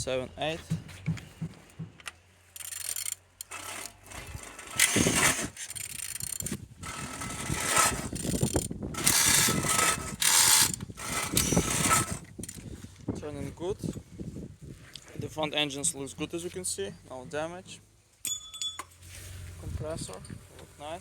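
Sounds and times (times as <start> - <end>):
engine turned over by hand: 1.1 - 12.7
irregular mechanical clicking: 2.0 - 12.7
mechanical scraping: 2.6 - 12.7.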